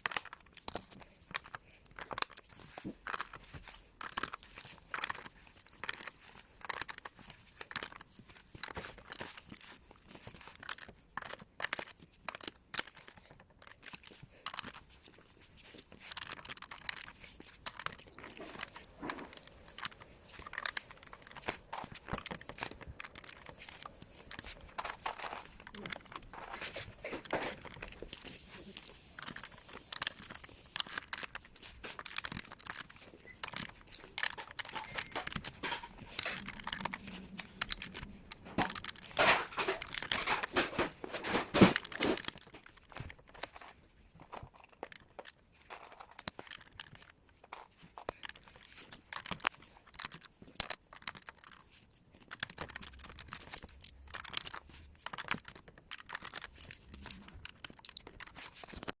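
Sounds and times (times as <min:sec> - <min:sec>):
plastic bricks clicking together: 0:00.0 - 0:59.0.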